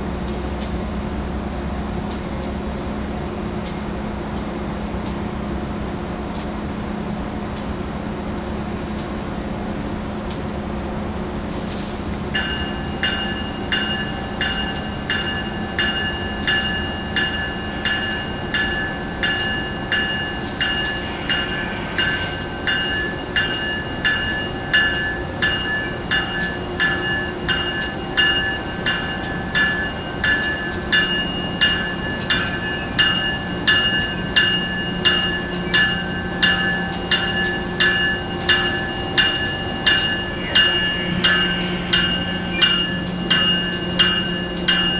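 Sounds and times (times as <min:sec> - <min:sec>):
idling locomotive hum: 0:00.0 - 0:44.9
locomotive bell ringing: 0:12.4 - 0:44.9.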